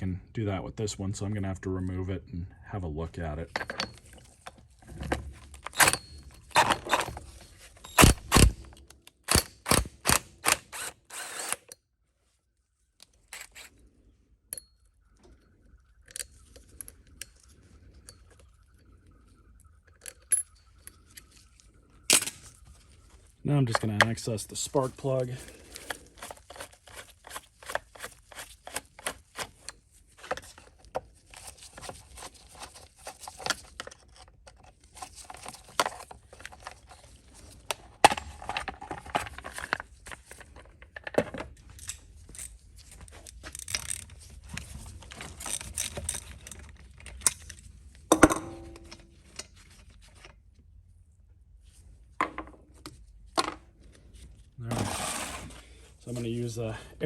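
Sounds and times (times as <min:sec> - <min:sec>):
metal tools clinking: 0:03.4 - 0:08.0.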